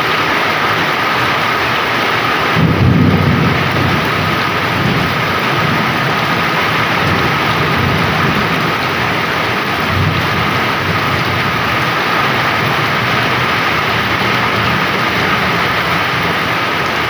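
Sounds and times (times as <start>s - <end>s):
heavy rain pouring: 0.0s - 17.0s
low roll of thunder: 2.4s - 17.0s.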